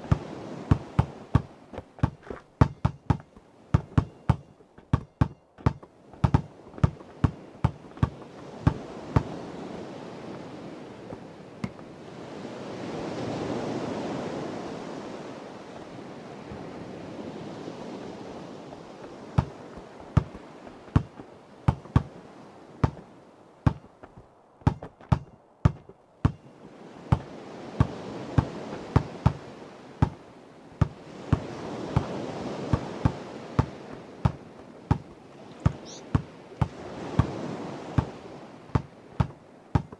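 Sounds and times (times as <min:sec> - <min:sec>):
sea waves washing: 0:00.0 - 0:02.4, 0:05.9 - 0:23.6, 0:26.6 - 0:39.7
basketball bouncing: 0:00.1 - 0:09.3, 0:19.4 - 0:22.1, 0:22.8 - 0:23.0, 0:23.6 - 0:26.4, 0:38.8 - 0:39.9.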